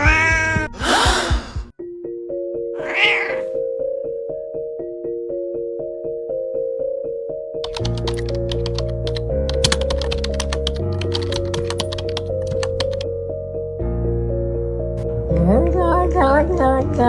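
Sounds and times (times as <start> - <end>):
background music with steady beat: 0.0 - 3.6
computer keyboard typing: 7.6 - 13.0.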